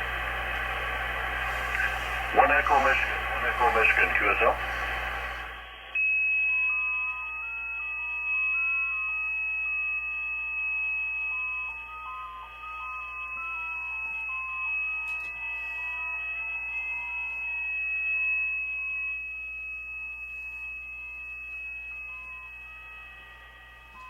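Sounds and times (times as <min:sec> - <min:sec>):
low hum: 0:00.0 - 0:06.0
warbling digital radio tones: 0:00.6 - 0:06.0.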